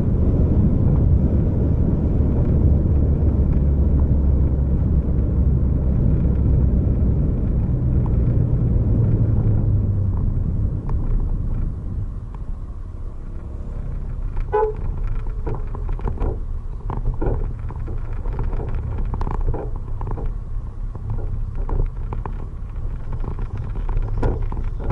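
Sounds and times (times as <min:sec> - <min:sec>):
vehicle engine and road rumble: 0:00.0 - 0:24.9
horn toot: 0:14.5 - 0:14.8.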